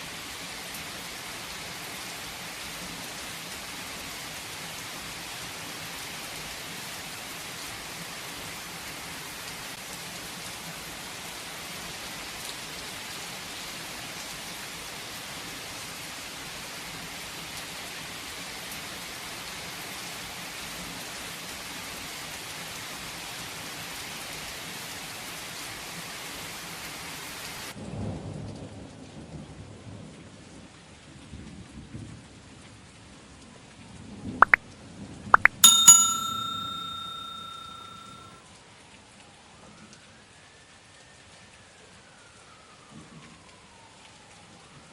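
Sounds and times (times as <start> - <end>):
steady rain: 0.0 - 30.0.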